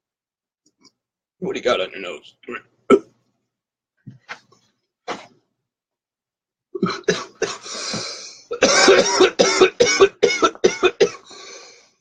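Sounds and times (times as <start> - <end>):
man coughing: 6.8 - 7.7, 8.5 - 11.3
long breath out: 11.2 - 12.0.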